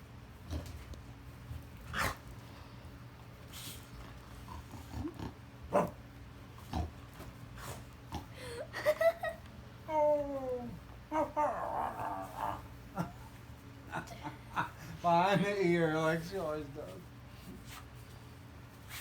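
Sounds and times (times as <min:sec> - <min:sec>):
dog snorting and sniffing: 0:00.4 - 0:01.0, 0:01.8 - 0:02.6, 0:03.4 - 0:08.4
dog pitched call: 0:05.7 - 0:06.0.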